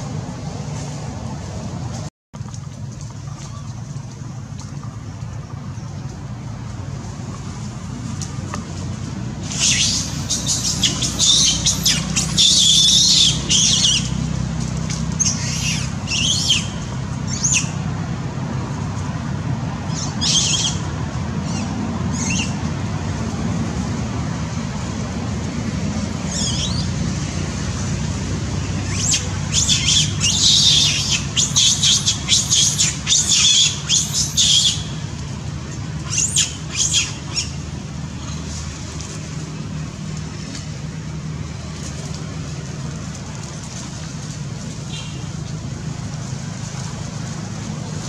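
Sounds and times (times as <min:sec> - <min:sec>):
small birds chirping: 0:09.5 - 0:14.1, 0:28.9 - 0:35.0.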